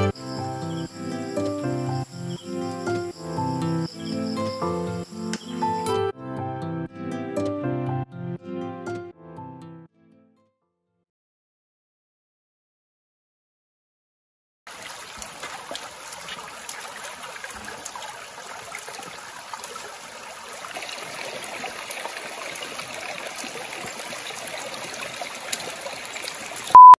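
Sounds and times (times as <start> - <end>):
small water splashes: 14.7 - 26.8
water running and trickling: 14.7 - 26.8.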